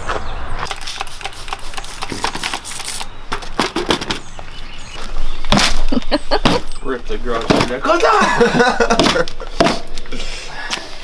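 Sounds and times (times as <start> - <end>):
hard objects clicking and knocking: 0.7 - 4.3, 5.5 - 7.9, 8.9 - 10.1.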